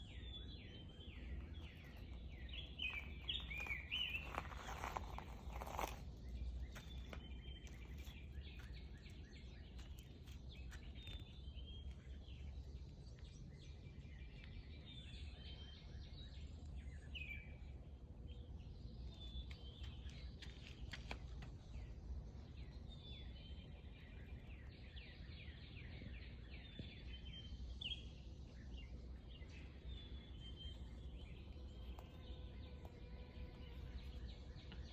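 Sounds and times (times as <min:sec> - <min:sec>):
small birds chirping: 0:00.0 - 0:34.9
rustle: 0:01.2 - 0:11.3.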